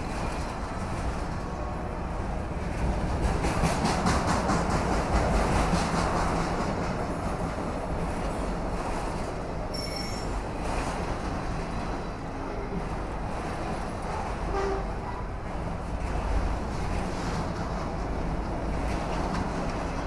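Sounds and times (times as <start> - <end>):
freight train wheels rumbling: 0.0 - 20.0
high-pitched wheel squeal: 9.7 - 10.4.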